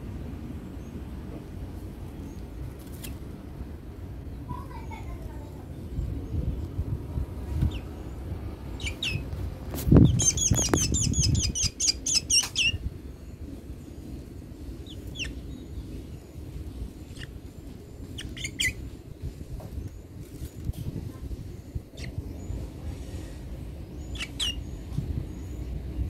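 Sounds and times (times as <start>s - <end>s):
bird chirping: 7.6s - 9.3s, 10.0s - 19.0s, 23.8s - 26.0s.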